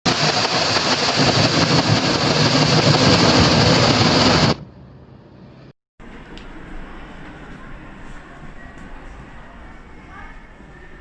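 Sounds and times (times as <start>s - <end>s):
engine running loudly: 0.1s - 4.6s.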